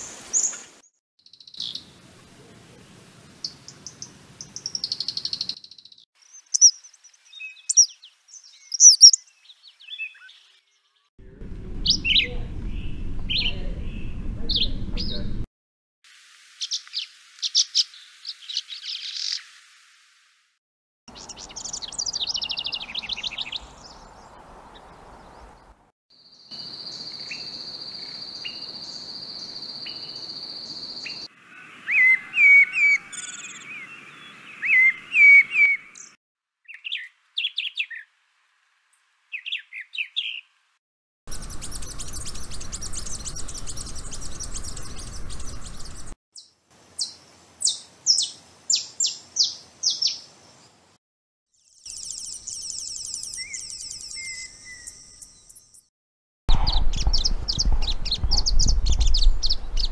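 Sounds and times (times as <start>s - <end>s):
wren song chattering: 3.4s - 10.3s, 11.2s - 15.4s, 21.1s - 24.4s, 41.3s - 50.3s, 51.7s - 55.9s, 56.5s - 59.9s
mockingbird song phrases: 3.4s - 11.1s, 11.8s - 15.4s, 21.1s - 25.8s, 26.5s - 38.0s, 39.3s - 40.5s, 41.3s - 50.3s, 51.8s - 55.9s.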